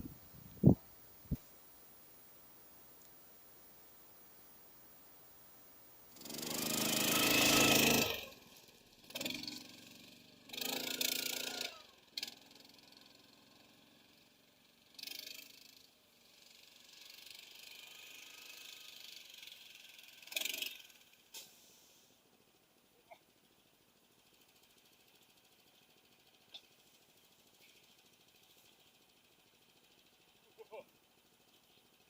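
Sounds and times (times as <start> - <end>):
small engine revving: 6.1 - 22.2.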